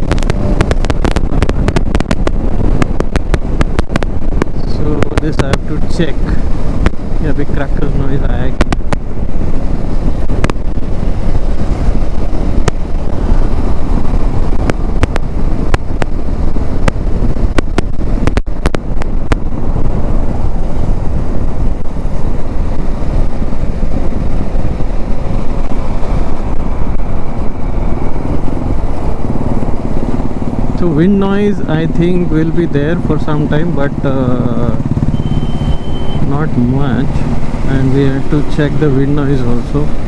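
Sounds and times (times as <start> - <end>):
microphone crackles: 0.0 - 5.7, 8.5 - 30.8
wind buffeting microphone: 0.0 - 40.0.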